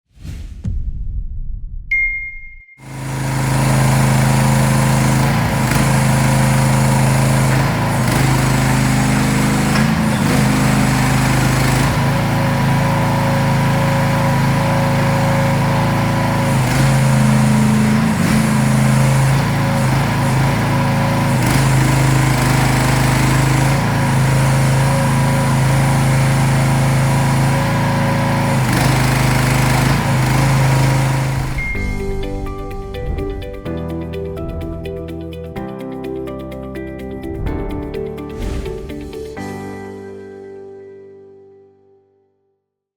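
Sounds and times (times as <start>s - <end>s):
mini excavator engine running: 2.8s - 35.3s.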